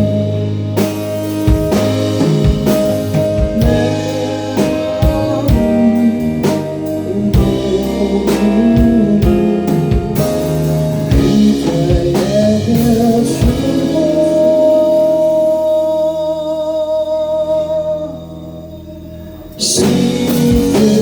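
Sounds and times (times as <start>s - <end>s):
drum kit hits: 0.0s - 14.3s
live band playing: 0.0s - 16.4s, 19.0s - 21.0s
guitar: 0.0s - 21.0s.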